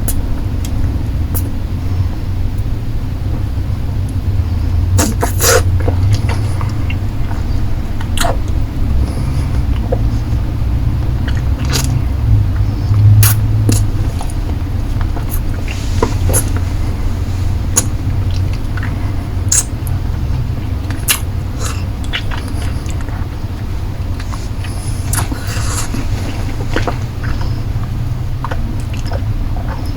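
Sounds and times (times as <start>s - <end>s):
low rumble: 0.0s - 29.9s
licking and sucking lollipop: 0.1s - 1.5s, 5.0s - 7.4s, 13.0s - 17.0s, 17.7s - 23.3s, 24.1s - 29.9s.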